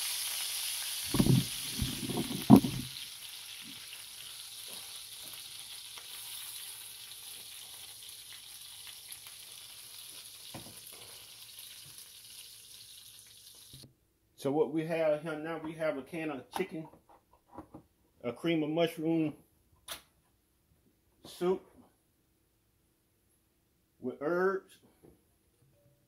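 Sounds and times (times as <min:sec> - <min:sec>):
chicken sizzling in hot oil: 0:00.0 - 0:13.8.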